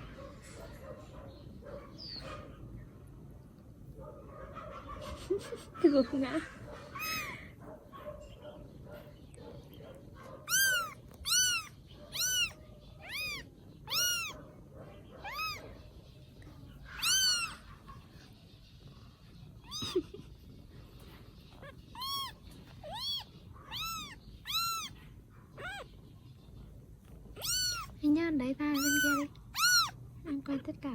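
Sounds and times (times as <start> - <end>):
kittens mewing: 4.8 - 7.6, 10.3 - 15.9, 16.8 - 30.2.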